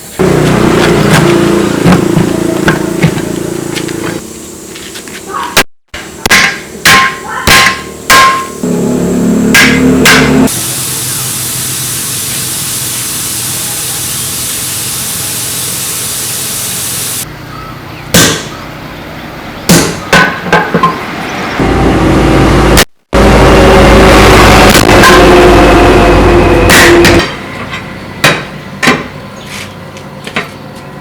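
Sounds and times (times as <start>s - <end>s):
steady hiss: 10.5s - 17.3s.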